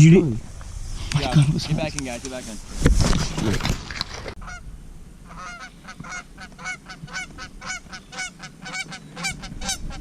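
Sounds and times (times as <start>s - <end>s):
geese honking: 4.4s - 4.6s, 5.2s - 10.0s.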